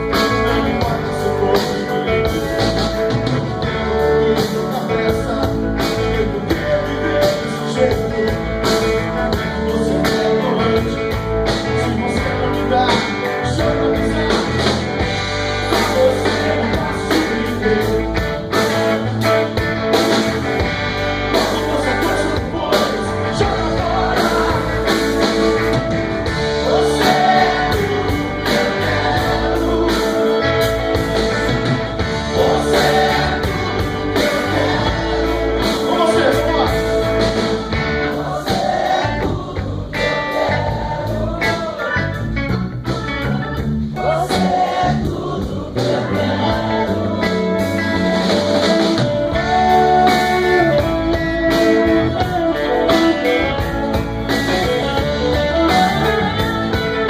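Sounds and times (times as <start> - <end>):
guitar: 0.0 - 57.0
steady drum beat: 0.0 - 57.0
person singing: 21.3 - 42.3, 44.0 - 57.0.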